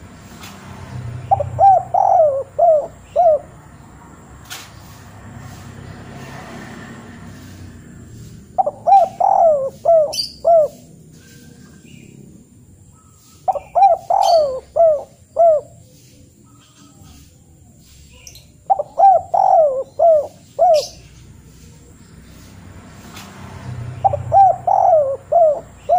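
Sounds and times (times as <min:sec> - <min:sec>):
bird calling: 0:01.2 - 0:03.9, 0:08.5 - 0:12.2, 0:12.8 - 0:22.5, 0:23.9 - 0:25.9.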